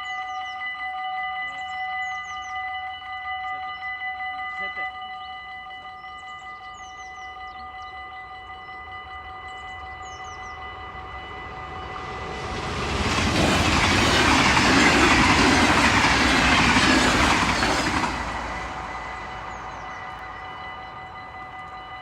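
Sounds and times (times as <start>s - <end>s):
crossing warning bells ringing: 0.0s - 22.0s
train passing at speed: 8.8s - 22.0s.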